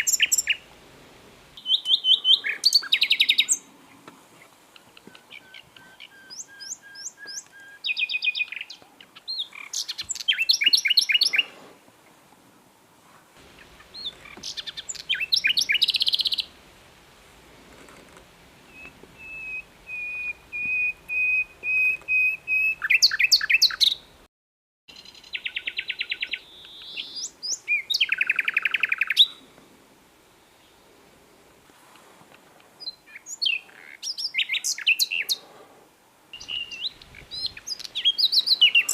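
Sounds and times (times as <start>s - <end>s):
nightingale singing: 0.0s - 0.7s, 1.6s - 4.0s, 4.7s - 11.6s, 13.4s - 16.6s, 18.6s - 24.2s, 24.9s - 29.4s, 32.8s - 35.4s, 36.3s - 38.9s.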